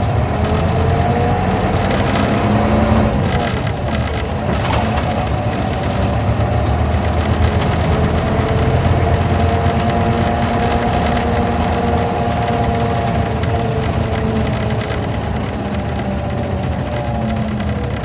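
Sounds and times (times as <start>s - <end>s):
diesel coach engine running: 0.0s - 18.0s
road noise: 0.0s - 18.0s.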